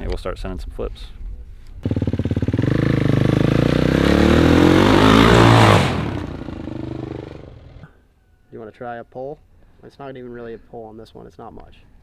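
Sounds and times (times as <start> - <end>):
dirt bike engine accelerating: 1.8 - 7.9.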